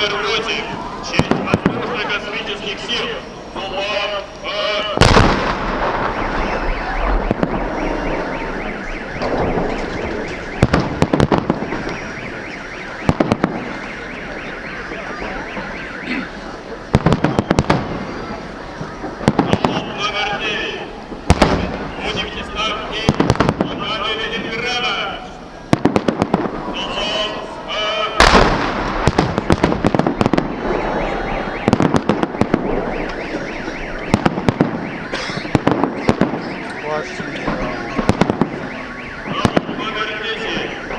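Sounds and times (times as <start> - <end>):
car alarm warbling: 0.0 - 40.9
fireworks bangs and crackling: 0.0 - 40.9
loud firework boom: 5.0 - 12.2, 21.1 - 23.9, 25.7 - 27.6, 28.2 - 36.5.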